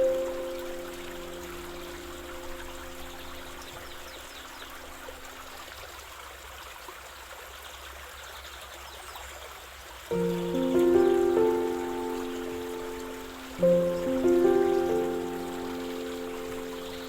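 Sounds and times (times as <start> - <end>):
held music notes: 0.0 - 5.1, 10.1 - 17.0
stream water flowing: 0.0 - 17.0.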